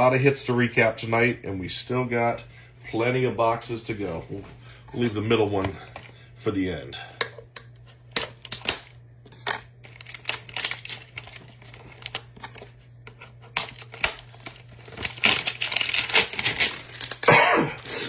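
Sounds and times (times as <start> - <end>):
trading cards rustling: 8.0 - 18.0
plastic wrapping crinkling: 8.1 - 18.0.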